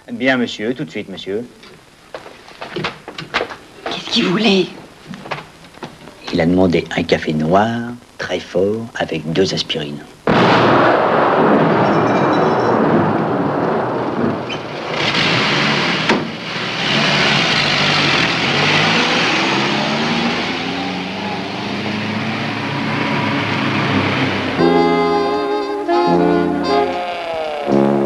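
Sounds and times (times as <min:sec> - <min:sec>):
rushing explosion noise: 0:10.2 - 0:20.6
sharp crack: 0:10.2 - 0:20.6
car engine revving: 0:13.4 - 0:24.7.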